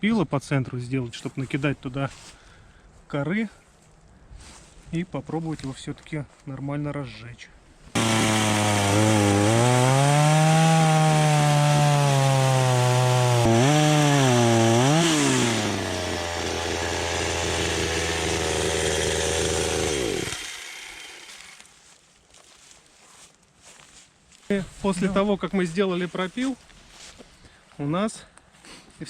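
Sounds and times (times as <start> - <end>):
chainsaw cutting into log: 7.9 - 21.7.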